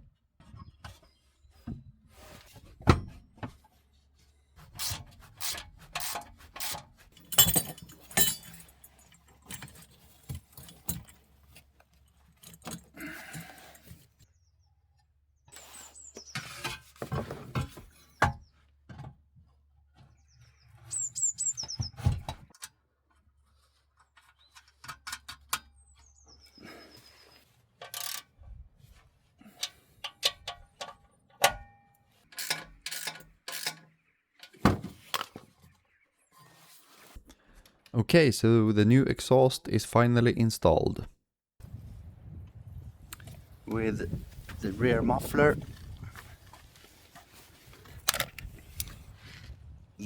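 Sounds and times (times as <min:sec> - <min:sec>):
metal parts and tools clanking: 0:04.8 - 0:14.0, 0:27.8 - 0:28.3, 0:29.5 - 0:35.4.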